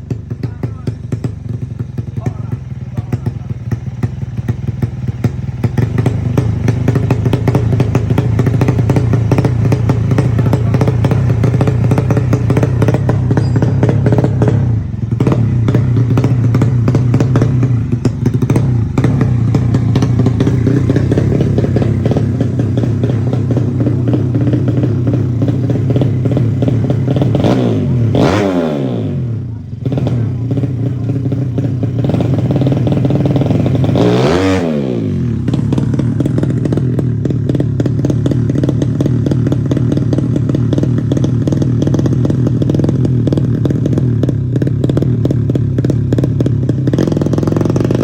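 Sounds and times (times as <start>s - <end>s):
motorcycle engine running at held revs: 0.0s - 48.0s.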